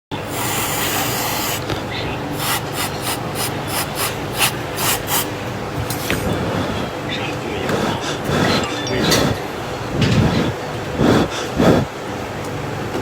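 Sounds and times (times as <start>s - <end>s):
rubbing strokes: 2.4s - 5.3s.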